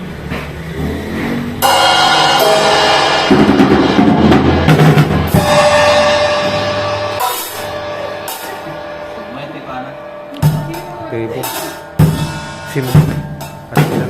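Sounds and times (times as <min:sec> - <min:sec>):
drum kit playing: 0:00.0 - 0:14.0
cymbal crash: 0:01.6 - 0:14.0
heavy drum hits: 0:01.6 - 0:14.0.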